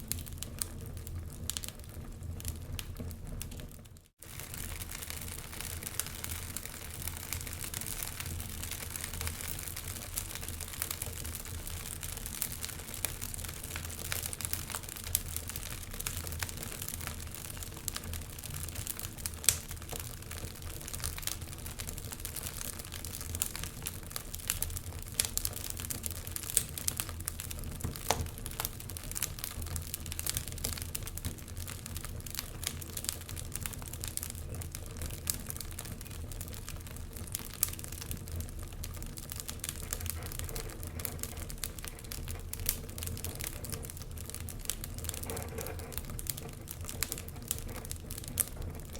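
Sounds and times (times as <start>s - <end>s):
wood fire crackling: 0.0s - 48.9s.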